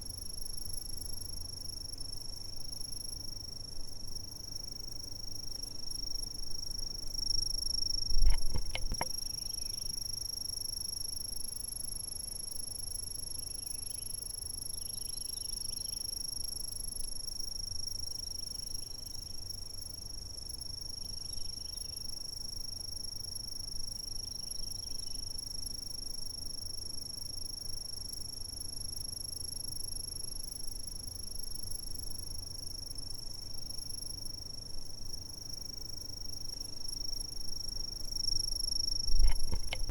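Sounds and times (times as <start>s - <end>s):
insect high-pitched trill: 0.0s - 39.9s
soft low insect chirps: 0.0s - 39.9s
sharp clicks or knocks: 8.2s - 9.1s, 39.2s - 39.9s.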